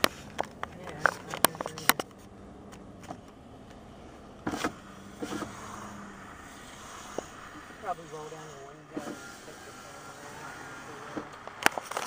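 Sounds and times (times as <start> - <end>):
sharp clicks and knocks: 0.0 - 3.8
rattling bumps: 0.0 - 9.6
car road noise: 0.0 - 12.0.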